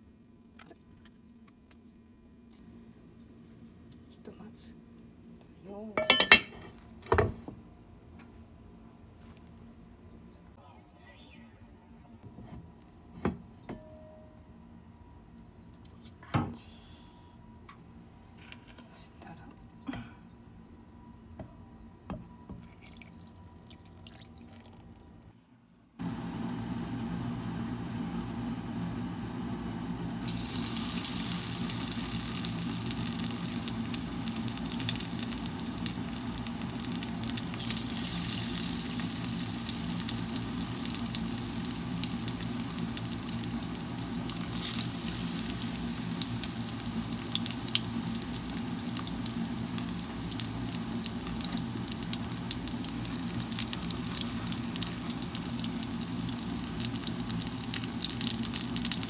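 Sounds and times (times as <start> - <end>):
dumplings sizzling in a pan: 30.2 - 59.0.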